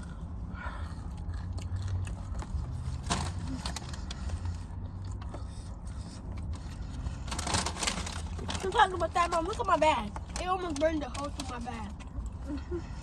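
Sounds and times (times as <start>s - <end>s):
person chewing food with crunches: 0.0s - 8.4s.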